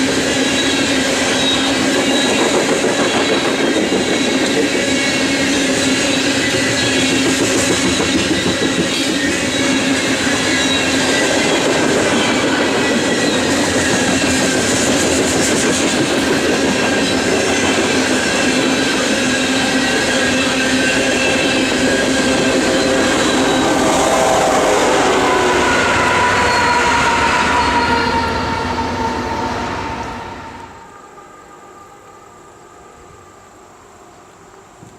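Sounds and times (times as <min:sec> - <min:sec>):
train wheels rumbling on rails: 0:00.0 - 0:31.2
thin wheel squealing: 0:00.4 - 0:15.0.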